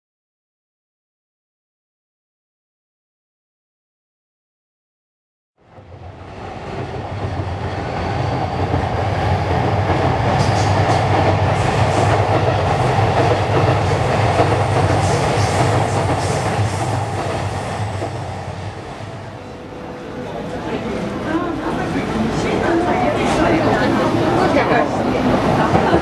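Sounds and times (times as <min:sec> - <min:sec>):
train wheels rumbling on rail: 0:05.6 - 0:26.0.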